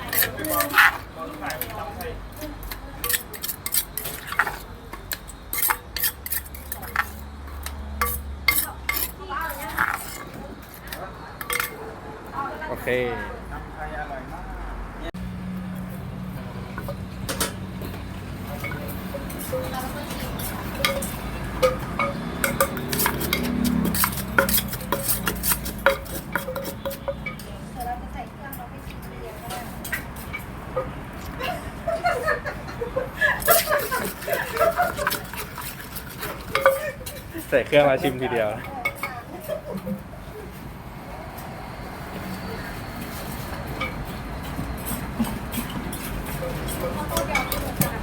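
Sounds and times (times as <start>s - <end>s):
utensils and dishes clinking: 0.0s - 12.0s, 16.3s - 40.1s, 42.1s - 48.0s
dishes clinking and knocking: 16.8s - 27.5s, 33.5s - 37.3s.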